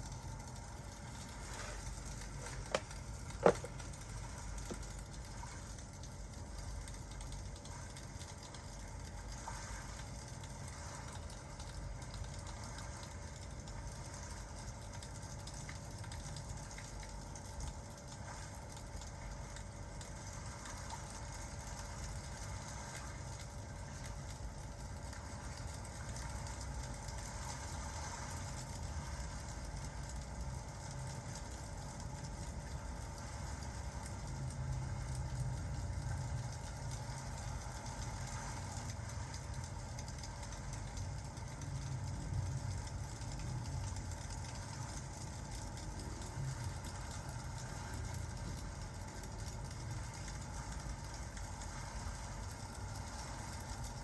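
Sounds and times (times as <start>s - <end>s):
fire pops and crackles: 0.0s - 9.4s
fireplace rumble: 0.0s - 54.0s.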